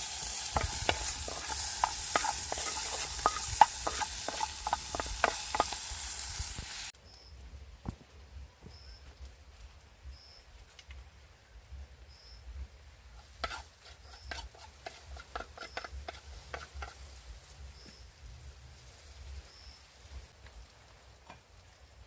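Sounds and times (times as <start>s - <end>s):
grubs crackling in frying pan: 0.0s - 6.9s, 13.2s - 22.0s
stirring clicks: 0.2s - 6.8s, 13.2s - 17.0s.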